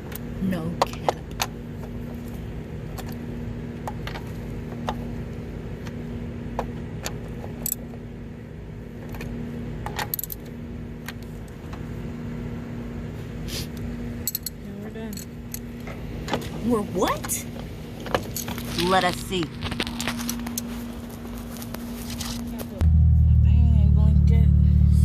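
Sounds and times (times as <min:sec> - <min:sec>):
steady low hum: 0:00.0 - 0:25.0
metallic tool clinks and rattles: 0:14.2 - 0:15.7.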